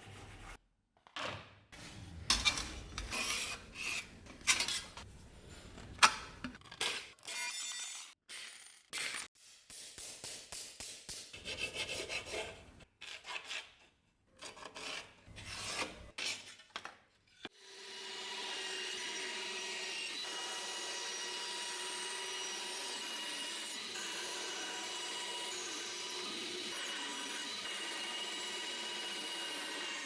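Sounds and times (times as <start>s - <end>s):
rasping hand filing or sanding: 11.4s - 12.6s
small electric power tool running: 17.6s - 30.0s.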